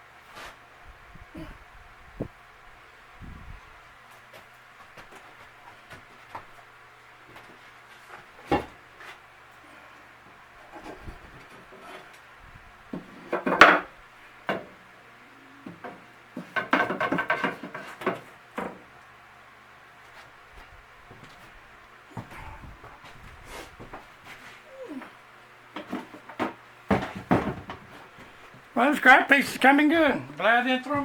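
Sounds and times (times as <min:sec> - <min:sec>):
rattling knocks of wood: 0:08.4 - 0:08.8, 0:12.9 - 0:14.8, 0:15.6 - 0:18.9, 0:25.7 - 0:28.7
wood knocking on a bench: 0:12.9 - 0:13.9, 0:14.5 - 0:14.8, 0:15.6 - 0:18.8, 0:25.8 - 0:28.0.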